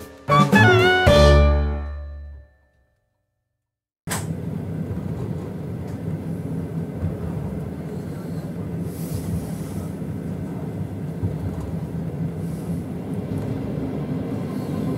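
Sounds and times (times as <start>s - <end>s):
train rumbling inside carriage: 4.2s - 14.9s.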